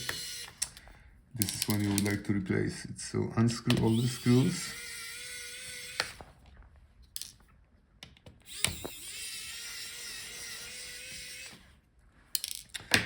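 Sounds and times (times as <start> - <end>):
electric screwdriver whining: 0.0 - 0.8, 3.7 - 6.3, 8.4 - 11.7.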